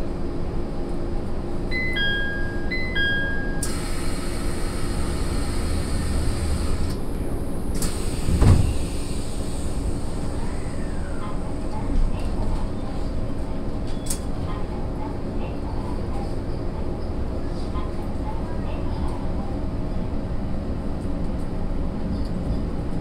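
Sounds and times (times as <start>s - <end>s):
two-note high-low chime: 1.7s - 3.7s
train wheels rumbling on rails: 3.6s - 23.0s.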